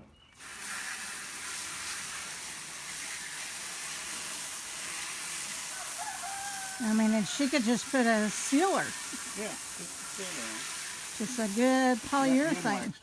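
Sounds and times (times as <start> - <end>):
hose spray nozzle hissing: 0.4 - 13.0.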